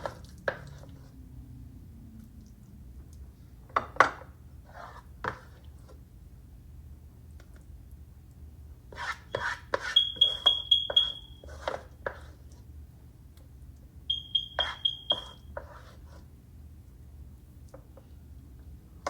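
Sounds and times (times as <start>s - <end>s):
rapid electronic beeping: 10.0s - 11.4s, 14.1s - 15.4s.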